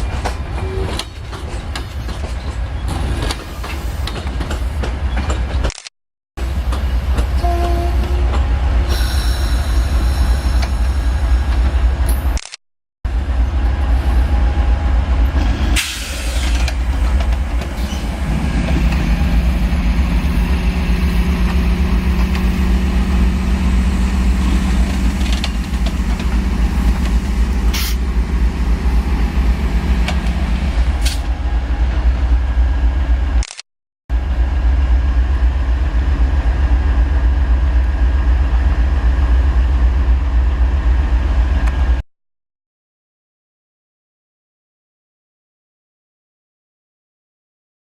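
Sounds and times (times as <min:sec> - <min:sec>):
diesel locomotive engine: 0:00.0 - 0:42.1
train rumbling past: 0:06.4 - 0:12.4, 0:13.1 - 0:33.4, 0:34.1 - 0:42.0.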